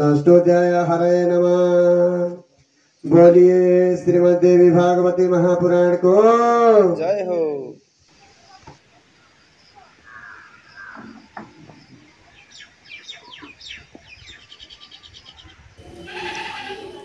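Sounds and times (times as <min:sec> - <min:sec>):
birds chirping and trilling: 0:08.2 - 0:17.0.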